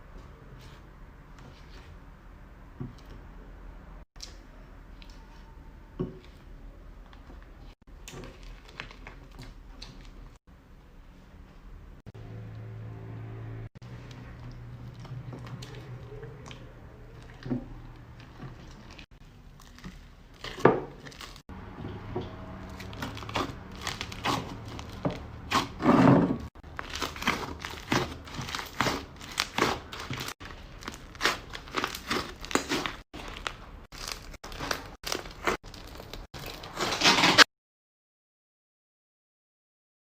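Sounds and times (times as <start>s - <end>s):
slime crackling and popping: 26.7s - 36.6s.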